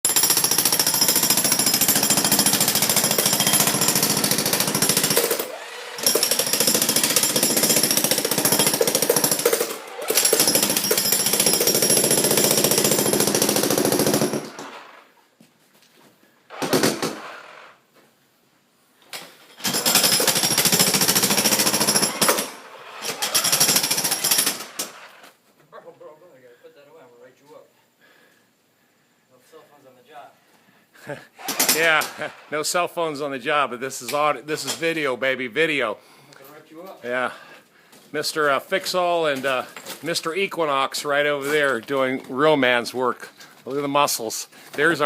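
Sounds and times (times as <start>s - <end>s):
jackhammer breaking concrete: 0.1s - 14.9s, 16.5s - 17.6s, 19.6s - 25.2s, 31.4s - 32.3s.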